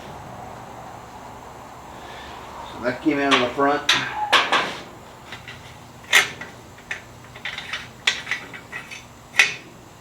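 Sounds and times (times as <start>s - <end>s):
metal parts clattering: 3.3s - 9.7s.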